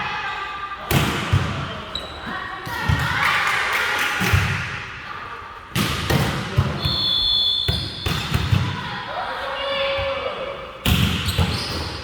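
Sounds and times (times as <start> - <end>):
ball hits echoing in gym: 0.8 - 1.9, 5.7 - 7.0, 7.6 - 8.9, 9.9 - 12.0
whistle blowing: 6.8 - 8.2.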